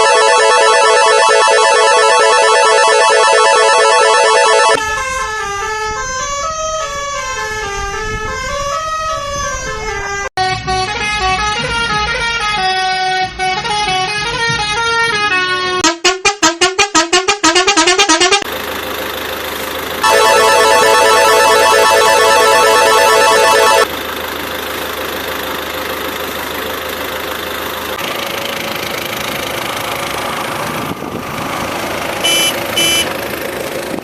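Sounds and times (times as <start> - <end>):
synthesized horn-like chord: 0.0 - 4.8, 15.8 - 18.5, 20.0 - 23.9, 32.2 - 33.0
wavering synthesized tune: 0.0 - 4.8, 16.0 - 18.4, 20.0 - 23.9
fast pulsing beep: 20.0 - 23.8, 32.3 - 33.1.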